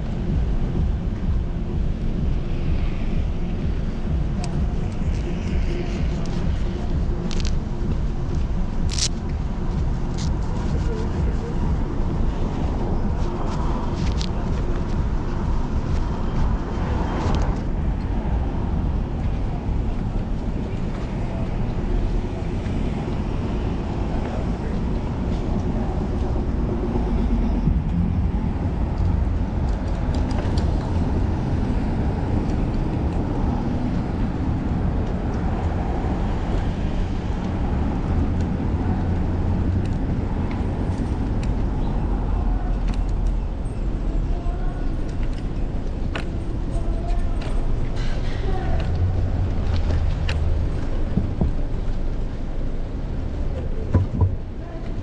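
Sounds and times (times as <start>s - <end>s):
heavy low rumble: 0.0s - 55.0s
street traffic: 0.0s - 55.0s.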